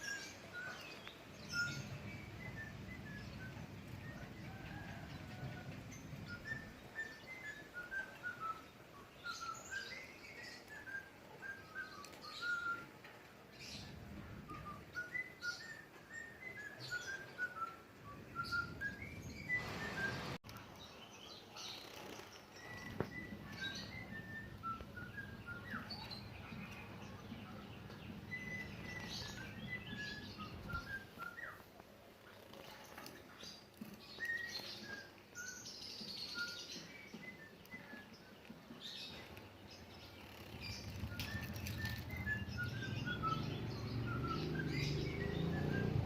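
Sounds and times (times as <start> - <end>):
small birds chirping: 18.2 - 46.0
brief rustle: 39.1 - 42.8.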